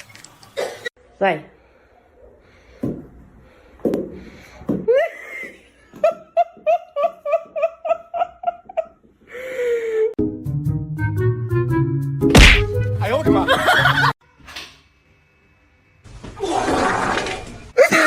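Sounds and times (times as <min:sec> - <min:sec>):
music: 0:10.2 - 0:14.1.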